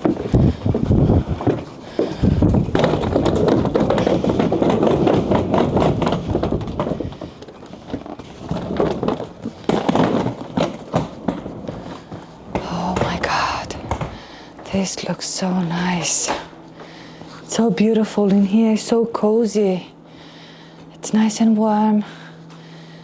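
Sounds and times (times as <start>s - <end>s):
knocks and clatter: 0.0s - 14.3s
footsteps: 0.0s - 14.4s.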